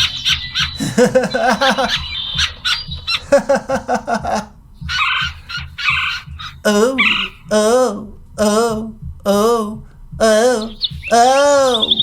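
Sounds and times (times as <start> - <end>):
person imitating bird calls: 0.0 - 12.0.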